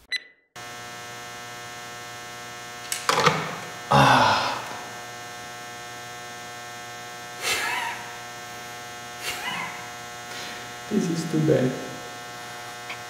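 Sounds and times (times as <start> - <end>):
steady buzzing hum: 0.6 - 13.0.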